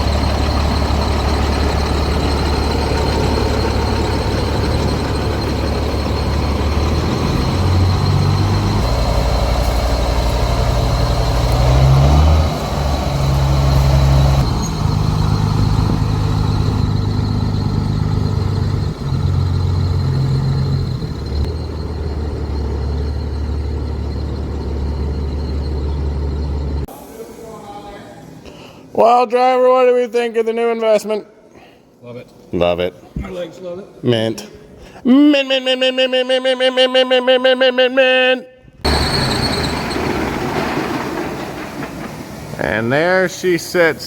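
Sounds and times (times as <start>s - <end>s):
truck diesel engine running: 0.0s - 26.9s, 38.8s - 44.0s.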